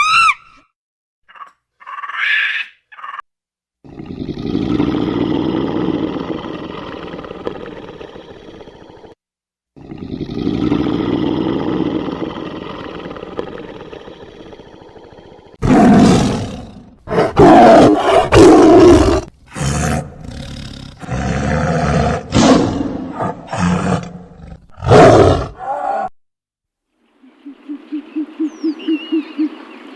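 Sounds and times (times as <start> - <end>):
large animal roaring: 3.8 - 9.2, 9.8 - 26.1.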